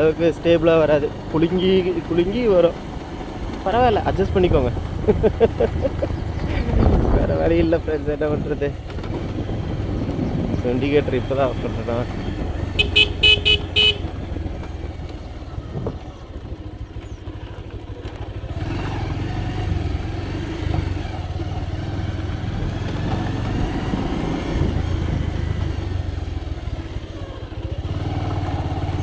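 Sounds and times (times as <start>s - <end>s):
motorcycle engine on rough road: 0.0s - 29.0s
motorcycle horn toots: 12.6s - 14.5s.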